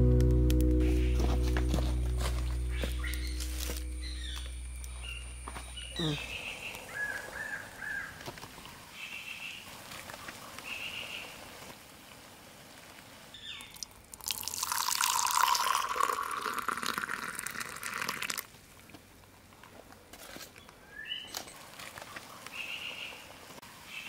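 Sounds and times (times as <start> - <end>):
water pouring in a stream: 13.6 - 18.5.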